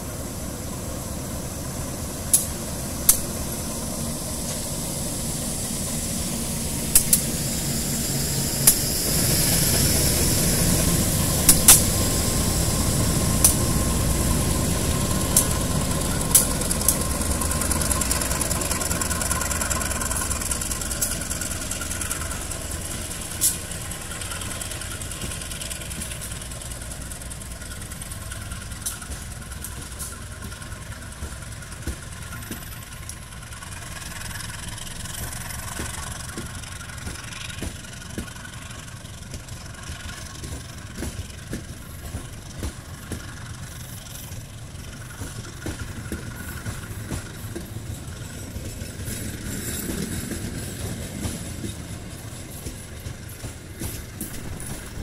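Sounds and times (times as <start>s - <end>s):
diesel locomotive engine rumble: 0.0s - 55.0s
train wagons rolling past: 0.0s - 55.0s
train wheels clicking on rails: 0.0s - 55.0s.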